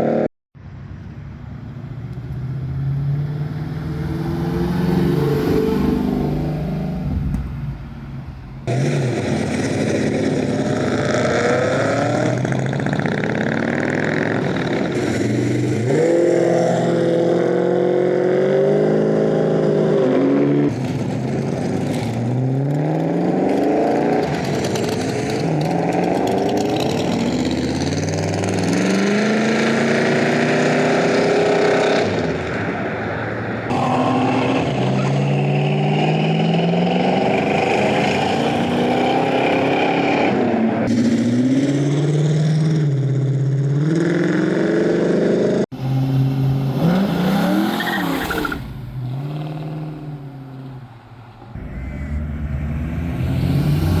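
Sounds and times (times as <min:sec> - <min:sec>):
car engines accelerating hard: 0:01.6 - 0:54.0.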